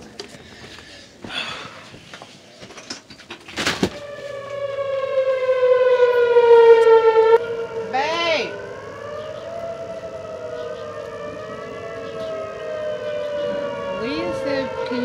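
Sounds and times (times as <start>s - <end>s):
warning siren wailing: 3.7s - 15.0s.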